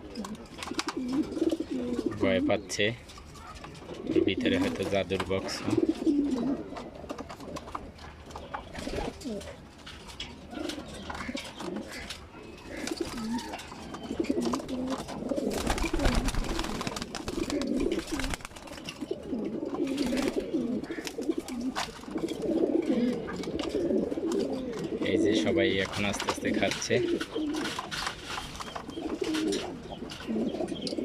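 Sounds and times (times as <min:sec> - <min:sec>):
pigeons cooing: 0:00.0 - 0:31.0
rustling noise: 0:25.8 - 0:30.4.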